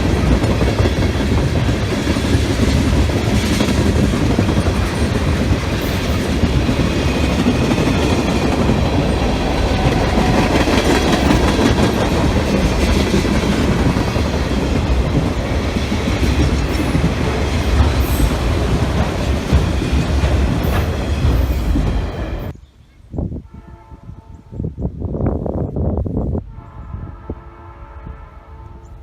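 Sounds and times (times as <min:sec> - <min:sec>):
train wheels clattering over rails: 0:00.0 - 0:22.5.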